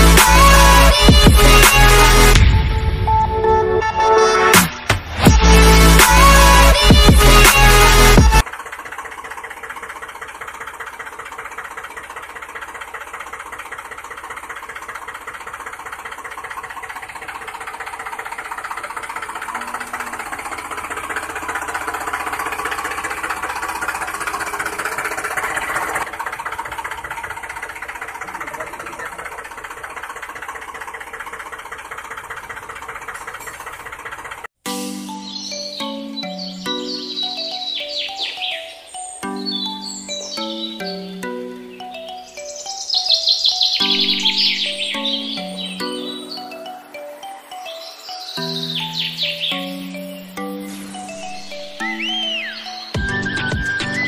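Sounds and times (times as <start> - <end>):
small motor clattering: 5.4 - 34.6.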